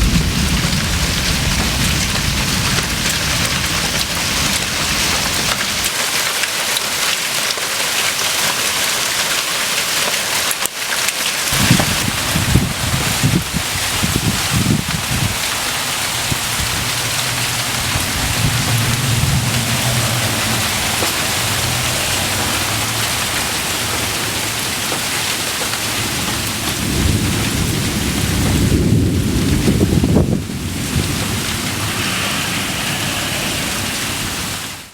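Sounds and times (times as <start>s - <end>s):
thunder rumbling: 0.0s - 5.9s, 11.5s - 24.6s, 26.0s - 34.9s
rain and ice falling: 0.0s - 34.9s.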